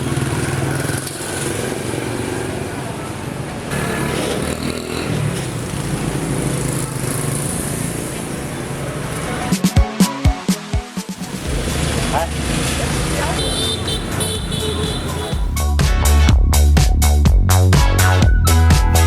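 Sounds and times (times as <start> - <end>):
motorbike engine running: 0.0 - 2.3.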